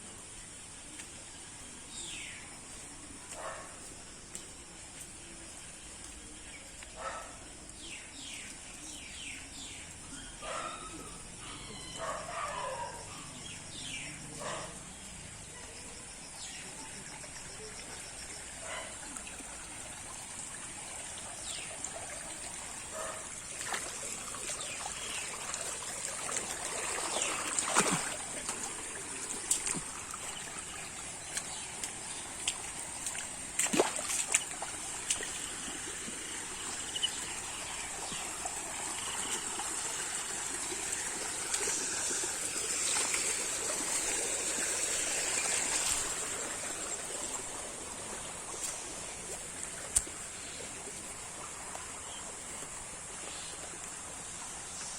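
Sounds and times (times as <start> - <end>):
floodwater flowing and trickling: 0.0 - 11.3, 12.0 - 54.9
water splashes: 16.4 - 54.9.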